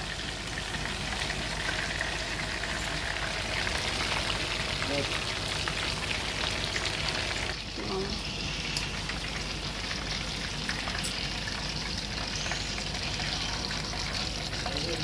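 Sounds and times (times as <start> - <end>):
chicken frying in hot oil: 0.0 - 15.0.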